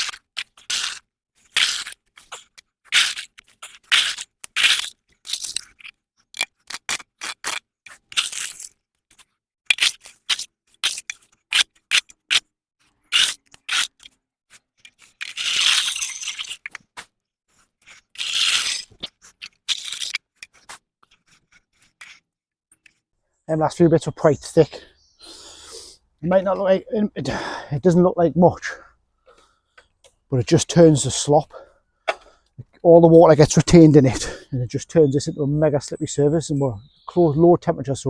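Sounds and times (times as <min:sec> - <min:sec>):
tool scraping mud off path: 0:00.0 - 0:23.0.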